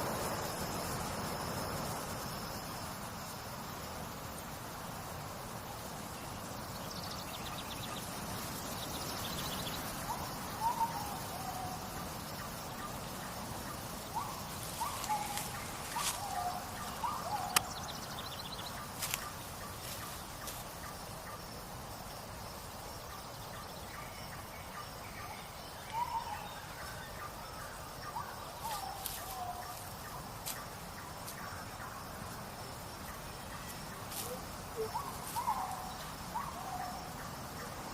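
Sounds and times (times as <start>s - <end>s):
steady hiss: 0.0s - 37.9s
bird calls with falling notes: 33.1s - 37.0s.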